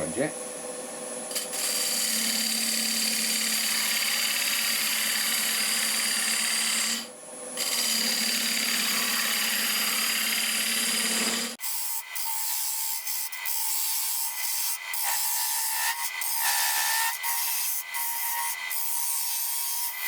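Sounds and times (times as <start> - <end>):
lathe motor hum: 0.1 - 11.6
lathe tool scraping wood: 1.3 - 20.0.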